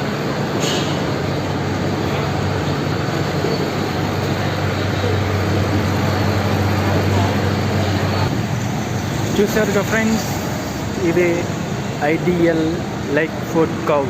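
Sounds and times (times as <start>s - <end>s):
low engine hum: 0.0s - 14.0s
traffic noise: 0.0s - 14.0s.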